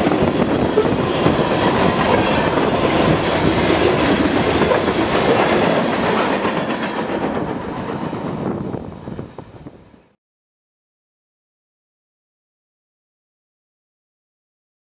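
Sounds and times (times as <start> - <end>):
freight train wheels on rails: 0.0 - 10.1.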